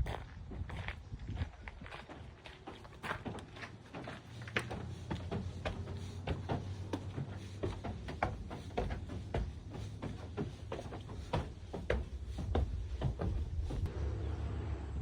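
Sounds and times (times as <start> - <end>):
footsteps on wooden boards: 0.0 - 13.9.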